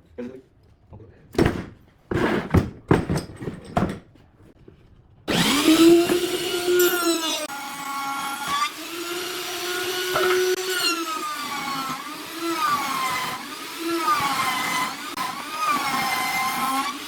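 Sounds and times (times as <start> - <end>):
power tool motor whining: 5.3 - 17.0.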